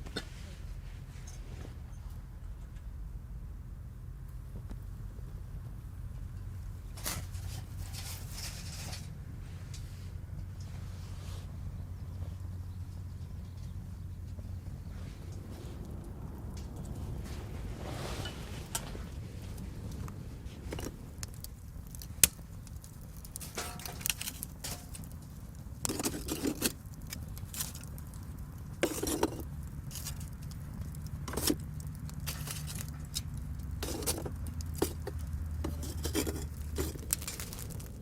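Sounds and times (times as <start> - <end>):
steady low rumble: 1.6 - 38.0
rattling: 23.4 - 25.2.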